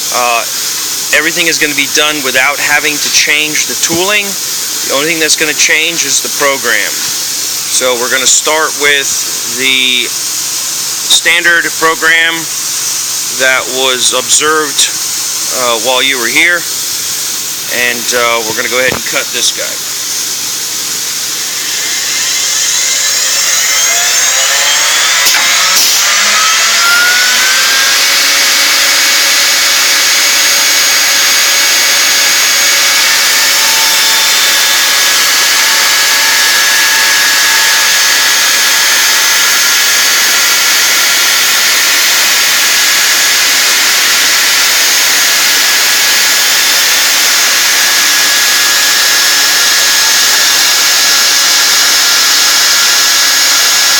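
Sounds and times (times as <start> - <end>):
router spindle cutting wood: 17.5 - 53.9.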